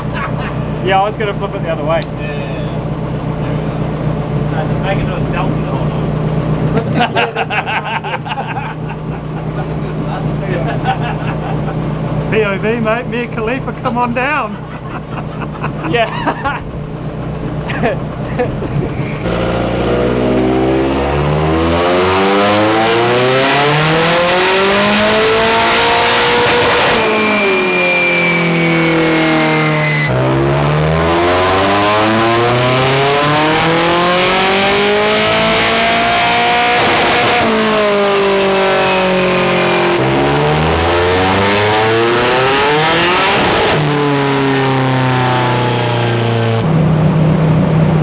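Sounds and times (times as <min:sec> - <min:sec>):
car engine revving: 0:00.0 - 0:07.6, 0:18.9 - 0:47.0
turbo whistle: 0:03.6 - 0:04.8, 0:26.4 - 0:30.3.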